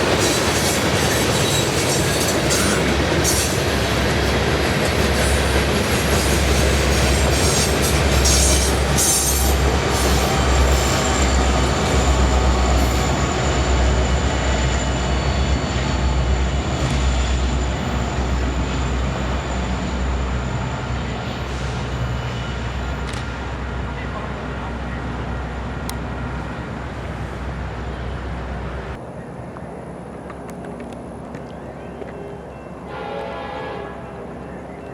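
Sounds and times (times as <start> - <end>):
train wheels rumbling on rail: 0.0 - 34.9
high wheel squeal: 0.2 - 3.9, 5.2 - 23.4.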